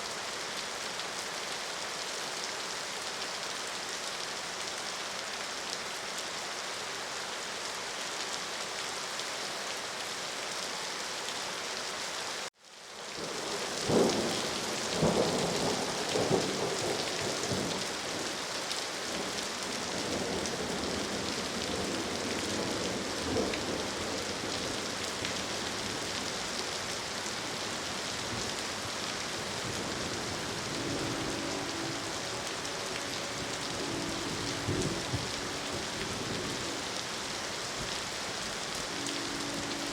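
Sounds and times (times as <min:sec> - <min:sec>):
heavy rain: 0:00.0 - 0:39.9
thunder cracking and rumbling: 0:33.1 - 0:36.7.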